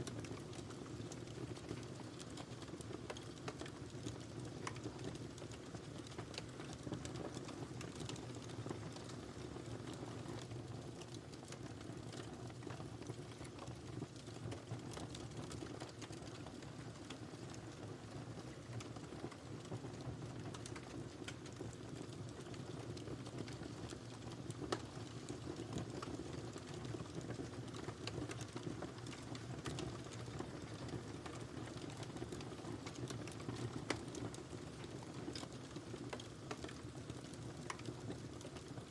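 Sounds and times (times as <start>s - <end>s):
firewood crackling and popping: 0.0s - 38.9s
low rumble of flames: 0.0s - 38.9s.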